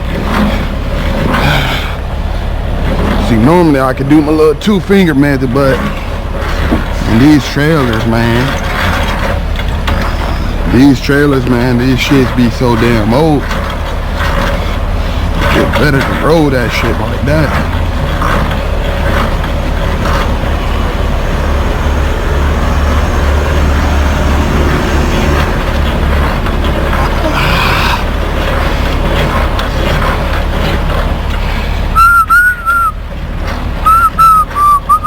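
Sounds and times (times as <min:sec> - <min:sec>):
high squeaks: 0:09.9 - 0:10.7
low rumble: 0:16.6 - 0:35.0.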